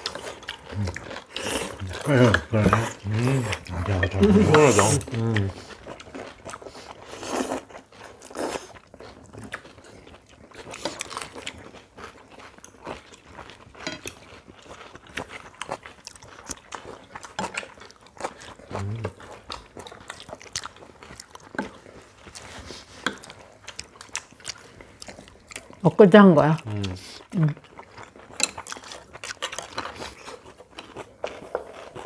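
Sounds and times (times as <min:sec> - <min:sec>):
people chewing and biting food: 0:00.0 - 0:25.9, 0:26.5 - 0:32.0.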